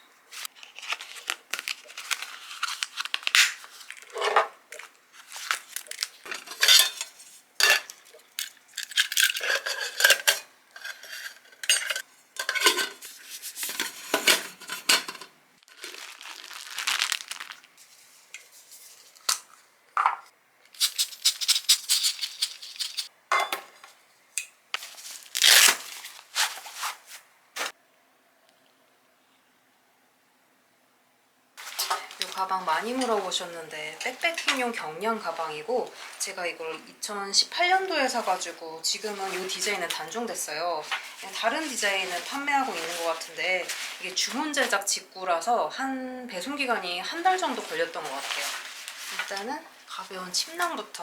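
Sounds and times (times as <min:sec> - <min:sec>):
packaging rustling and crinkling: 0:00.3 - 0:06.3, 0:15.6 - 0:19.3, 0:24.8 - 0:27.7, 0:31.6 - 0:36.4, 0:37.5 - 0:44.9, 0:47.1 - 0:50.9.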